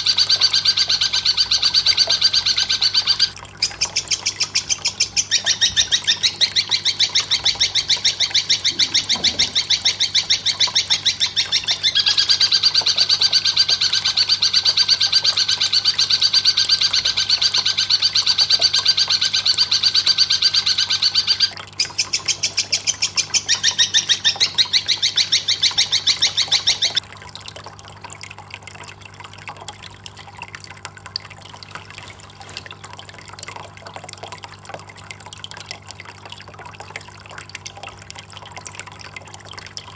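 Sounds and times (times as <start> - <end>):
bird chattering: 0.0 - 27.0.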